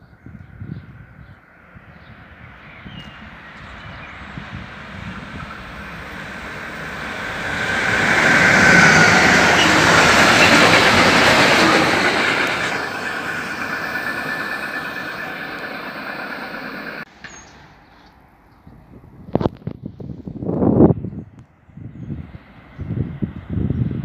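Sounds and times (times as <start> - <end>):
freight train wheels passing: 1.7 - 17.8.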